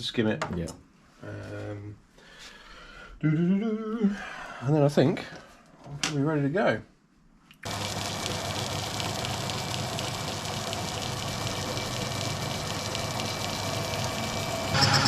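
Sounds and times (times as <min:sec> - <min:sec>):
metal lathe motor humming: 0:07.7 - 0:15.0.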